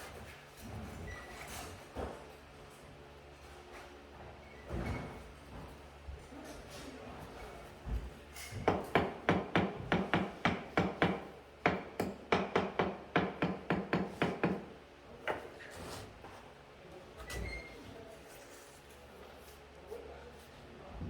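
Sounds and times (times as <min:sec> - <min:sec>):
rapid hammering: 0:08.7 - 0:14.7.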